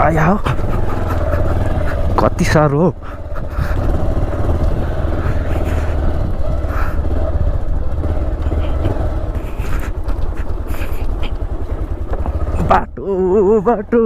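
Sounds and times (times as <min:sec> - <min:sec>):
motorcycle engine rumble: 0:00.0 - 0:14.0
knocks and clatters on gravel: 0:08.3 - 0:12.6.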